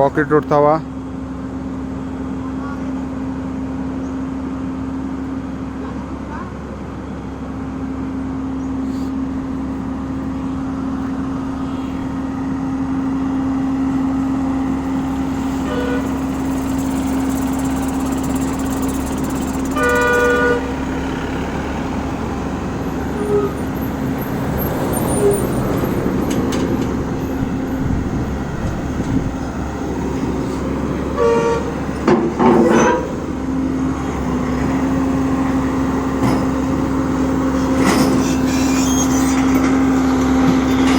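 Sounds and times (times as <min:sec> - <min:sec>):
excavator diesel engine running: 0:00.0 - 0:40.9
vehicle horn toot: 0:15.6 - 0:16.3, 0:19.7 - 0:20.8, 0:31.1 - 0:31.8, 0:32.6 - 0:33.2.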